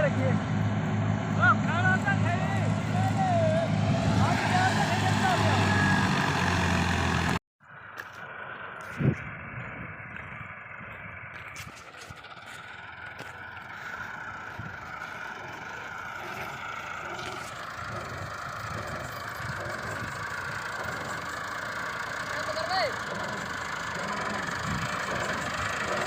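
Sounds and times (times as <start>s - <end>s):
tractor engine running: 0.0s - 26.0s
thresher rattling clatter: 17.0s - 26.0s.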